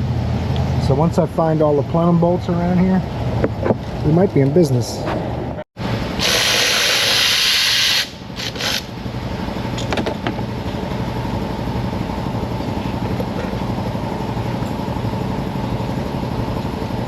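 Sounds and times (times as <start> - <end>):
low engine-like hum: 0.0 - 6.2, 8.2 - 17.0
air hissing: 6.2 - 8.9.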